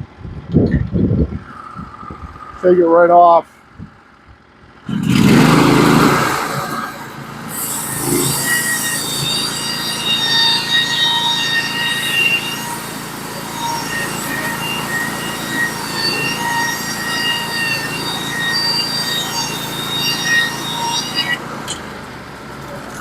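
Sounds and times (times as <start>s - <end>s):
engine running under load: 0.0s - 23.0s
band saw blade whining: 4.9s - 23.0s.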